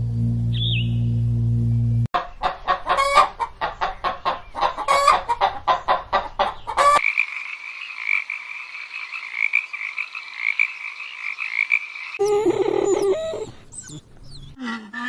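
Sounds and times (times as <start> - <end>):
chicken squawks: 2.2 - 7.0, 14.6 - 15.0
chickens clucking: 2.2 - 7.0, 12.2 - 15.0
chorus of frogs: 2.2 - 12.9, 14.6 - 15.0.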